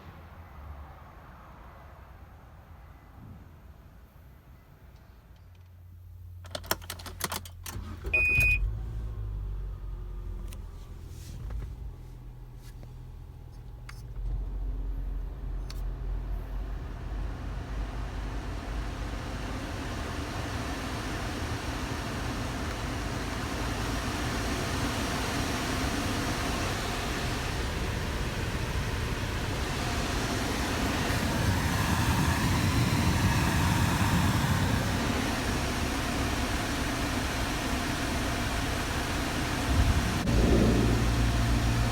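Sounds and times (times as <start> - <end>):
car engine running: 7.6 - 41.9
blower fan rushing air: 16.2 - 41.9.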